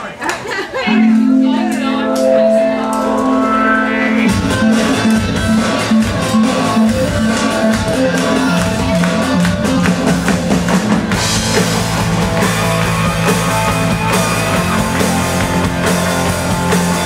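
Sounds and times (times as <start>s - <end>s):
bass guitar: 0.9s - 17.0s
electric guitars: 0.9s - 17.0s
drums and cymbals: 4.3s - 17.0s.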